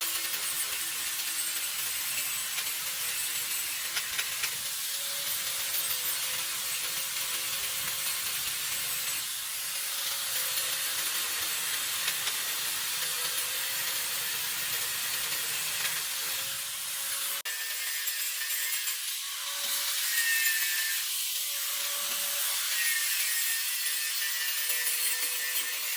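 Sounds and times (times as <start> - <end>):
power tool polishing metal: 0.0 - 25.9.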